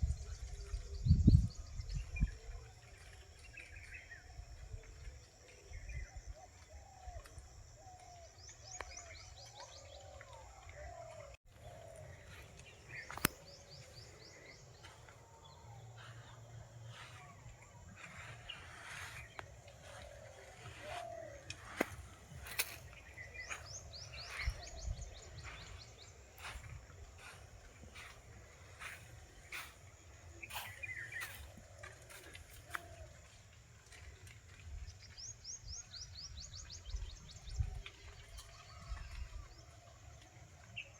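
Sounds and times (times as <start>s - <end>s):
low whistled bird calls: 7.8s - 33.1s
sharp clicks: 13.1s - 13.5s.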